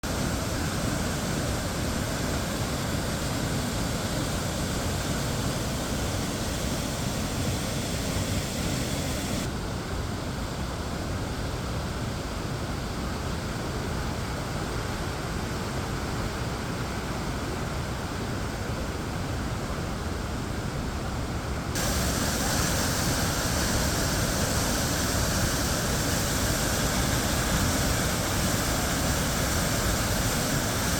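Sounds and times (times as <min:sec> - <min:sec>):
waterfall rushing: 0:00.0 - 0:09.5, 0:21.8 - 0:30.9.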